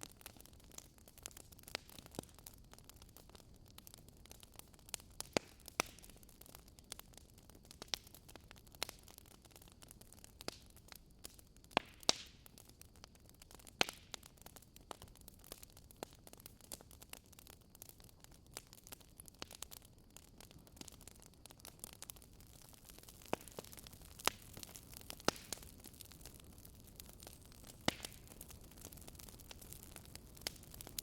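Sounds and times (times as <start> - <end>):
fire popping and snapping: 0.0 - 31.0
low steady hiss of fire: 0.0 - 31.0.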